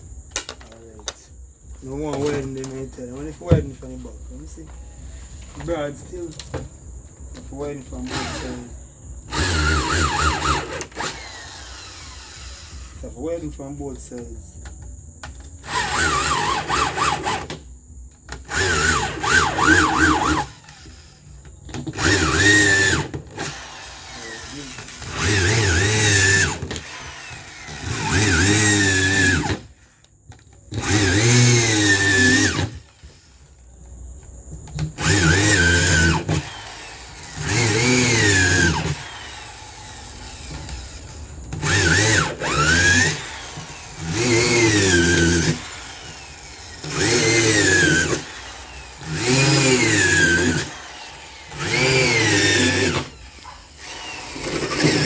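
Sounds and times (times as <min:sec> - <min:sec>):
electric drill boring in bursts: 0:07.5 - 0:13.4, 0:15.6 - 0:17.6, 0:18.3 - 0:30.0, 0:30.7 - 0:33.6, 0:34.8 - 0:55.0.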